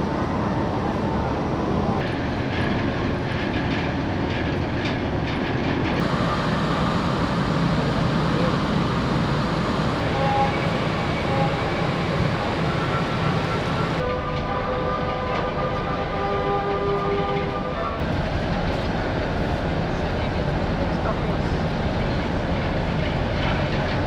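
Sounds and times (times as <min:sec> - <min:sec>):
ferry rumble and rush: 0:01.1 - 0:14.0
steady held tones: 0:06.0 - 0:14.0.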